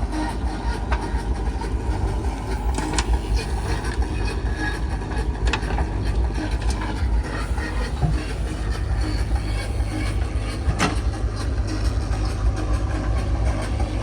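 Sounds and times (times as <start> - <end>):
diesel machinery engine running: 0.0 - 14.0.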